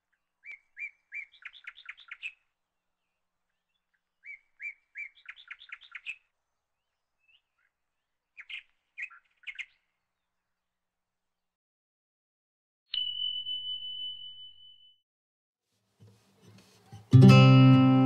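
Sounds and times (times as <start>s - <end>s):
songbird singing: 0.0s - 10.8s.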